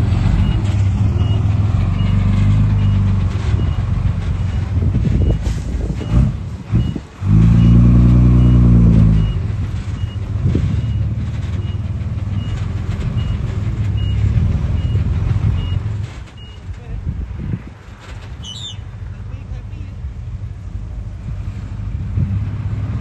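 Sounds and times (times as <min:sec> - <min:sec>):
heavy machinery diesel engine: 0:00.0 - 0:23.0
reversing alarm beeping: 0:07.6 - 0:09.4.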